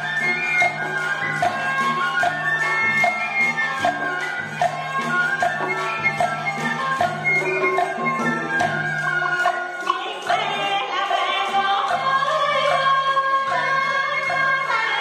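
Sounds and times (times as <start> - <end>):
percussion strokes: 0.0 - 15.0
voices singing drawn-out notes: 0.0 - 15.0.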